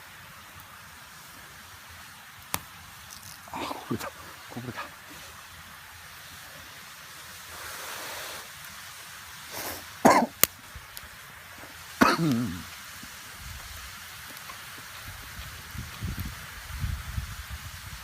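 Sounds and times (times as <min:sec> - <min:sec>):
person's throaty vocal sounds: 0:03.5 - 0:05.0, 0:12.0 - 0:12.7.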